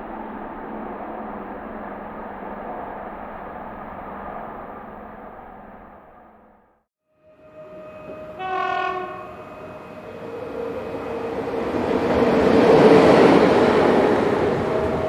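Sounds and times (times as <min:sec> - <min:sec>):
train passing rumble: 0:00.0 - 0:15.0
train horn blast: 0:07.2 - 0:11.8.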